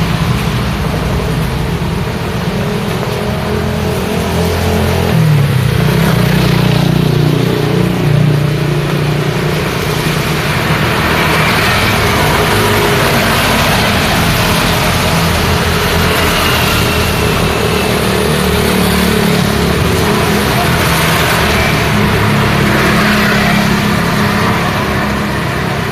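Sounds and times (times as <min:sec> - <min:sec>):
rain hiss: 0:00.0 - 0:06.3
tyres on wet road: 0:00.0 - 0:25.9.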